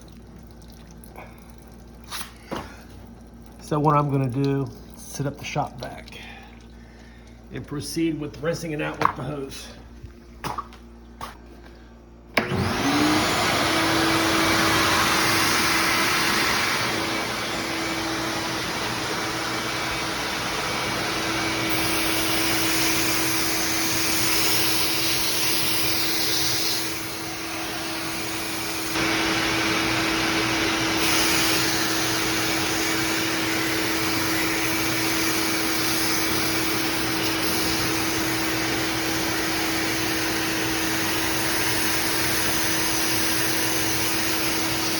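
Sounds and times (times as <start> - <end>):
shop vac motor whining: 11.5 - 44.9.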